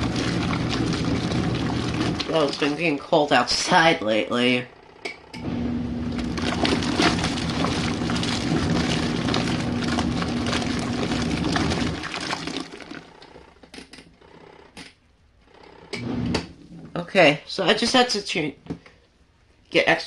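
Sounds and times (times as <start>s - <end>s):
water sloshing and churning: 0.0s - 3.1s, 5.9s - 13.3s
washing machine motor hum: 0.0s - 4.1s, 5.4s - 13.5s.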